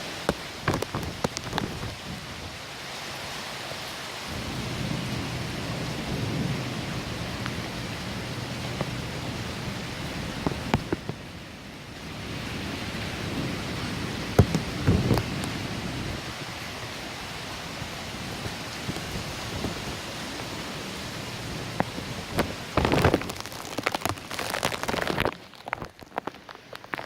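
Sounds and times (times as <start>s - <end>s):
heavy rain: 0.0s - 27.0s
wind: 0.0s - 27.0s
sharp drip-like knocks: 0.2s - 1.9s, 8.6s - 9.1s, 10.4s - 11.2s, 14.3s - 15.6s.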